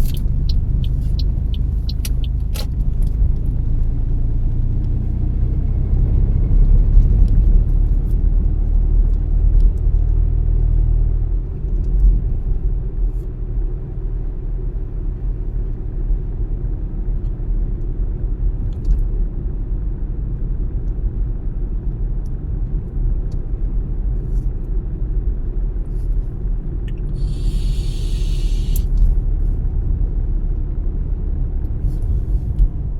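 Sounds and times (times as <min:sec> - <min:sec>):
car road and engine rumble: 0:00.0 - 0:32.9
brief high hiss: 0:27.2 - 0:29.0.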